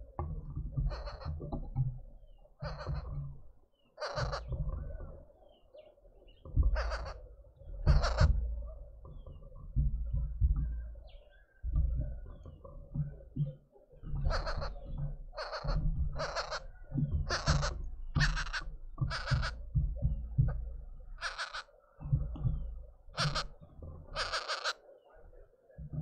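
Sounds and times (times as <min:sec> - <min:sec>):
low thuds and rumbling: 0:00.0 - 0:03.5, 0:06.5 - 0:13.4, 0:14.2 - 0:24.3
bird harsh raspy calls: 0:00.7 - 0:01.6, 0:02.2 - 0:09.6, 0:14.0 - 0:25.5.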